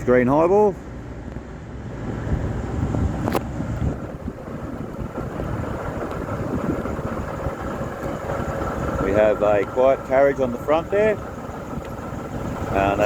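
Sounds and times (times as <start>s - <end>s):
wind buffeting microphone: 1.8s - 13.0s
train rumbling into station: 3.9s - 13.0s.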